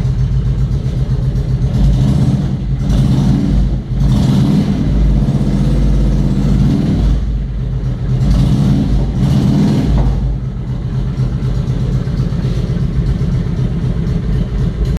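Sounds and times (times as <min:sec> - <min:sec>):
motorcycle engine revving and idling: 0:00.0 - 0:15.0.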